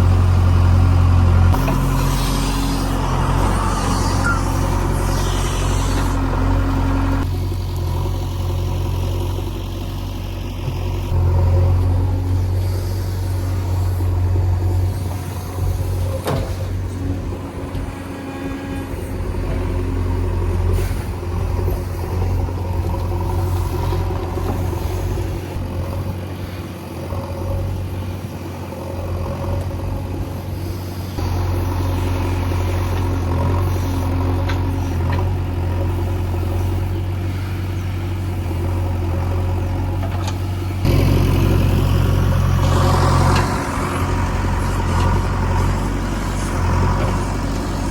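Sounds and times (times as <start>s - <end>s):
farm machinery engine humming: 0.0s - 47.9s.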